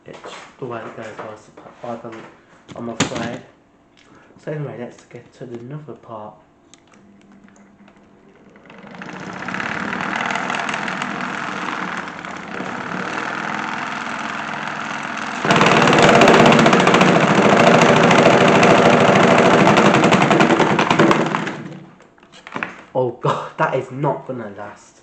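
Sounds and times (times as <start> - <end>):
toy washing machine rattling whirr: 7.8 - 22.0.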